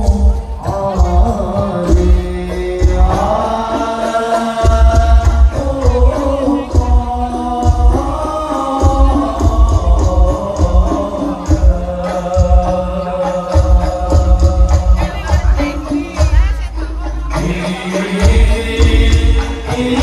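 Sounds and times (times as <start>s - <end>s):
chant with long held notes: 0.0s - 15.8s, 17.3s - 20.0s
deep beating bass drum: 0.0s - 20.0s
hand percussion: 0.0s - 20.0s.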